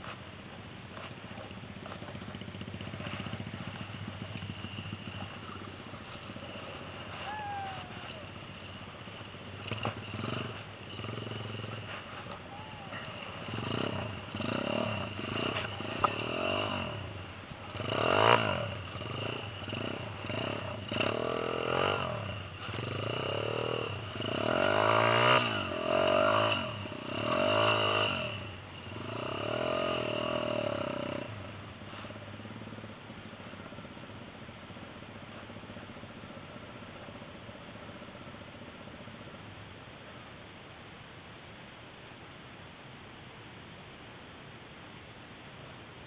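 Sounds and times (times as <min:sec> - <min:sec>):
small motorbike engine revving: 0:02.2 - 0:32.9.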